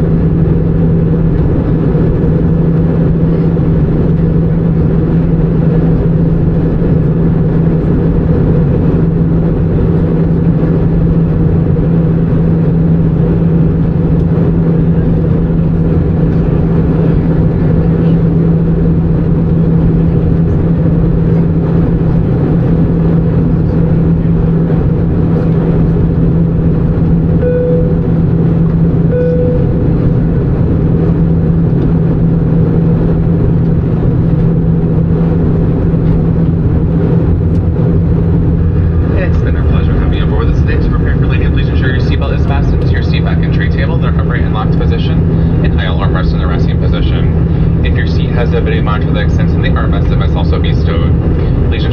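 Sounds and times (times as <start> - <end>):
airplane cabin drone: 0.0 - 51.9
short beeps: 27.4 - 28.1, 29.1 - 29.8.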